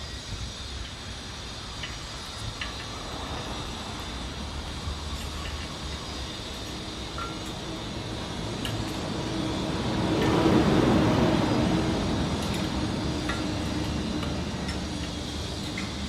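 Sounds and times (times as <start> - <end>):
vehicle passing: 7.0 - 16.0.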